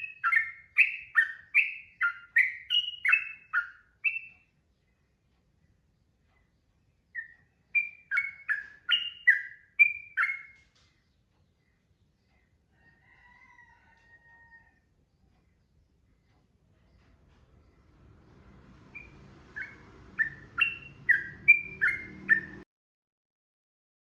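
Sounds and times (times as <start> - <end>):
bulbul singing: 0.0 - 5.1, 6.0 - 12.5, 17.6 - 22.6.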